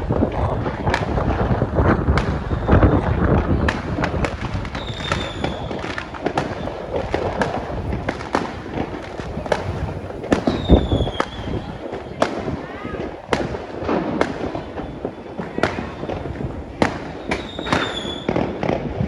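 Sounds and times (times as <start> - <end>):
firework bangs and crackles: 0.0 - 19.0
high falling whistle: 4.5 - 7.8.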